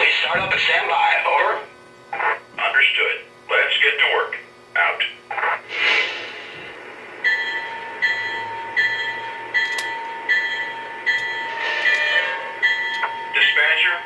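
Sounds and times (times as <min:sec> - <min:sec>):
locomotive bell ringing: 0:07.2 - 0:14.0.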